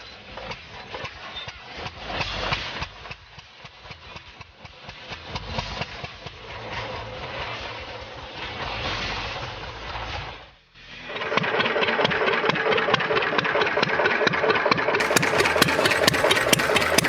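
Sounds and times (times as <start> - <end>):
motorcycle engine running unevenly: 15.0 - 17.0.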